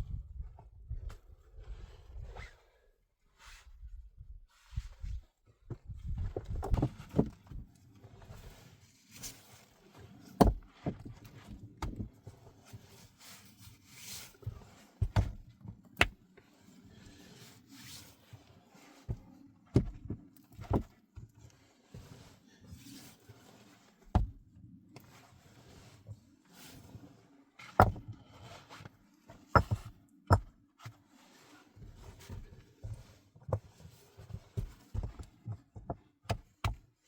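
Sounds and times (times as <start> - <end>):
handling knocks and thumps: 29.6 - 30.5.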